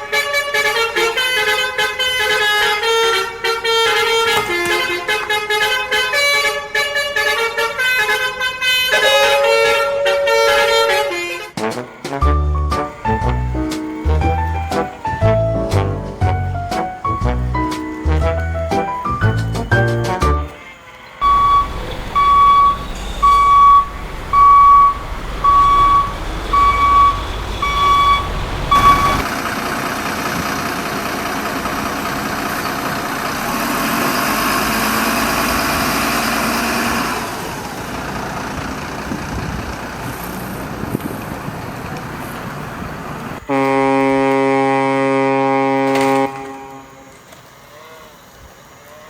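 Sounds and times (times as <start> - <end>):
air horn blast: 0.0 - 29.3, 43.5 - 47.1
truck engine running: 12.2 - 20.6, 21.2 - 43.5
truck reversing alarm beeping: 12.3 - 29.4.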